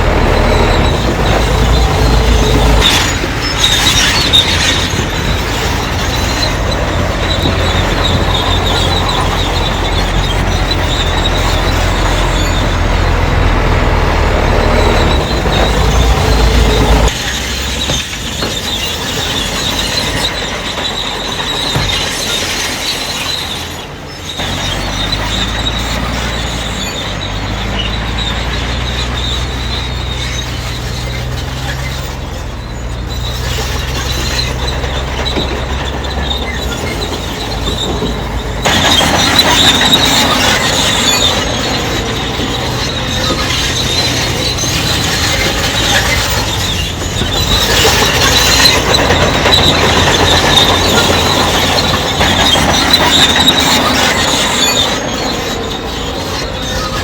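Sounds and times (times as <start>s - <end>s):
bulldozer diesel engine: 0.0s - 57.0s
steel tracks squealing and clattering: 0.0s - 57.0s.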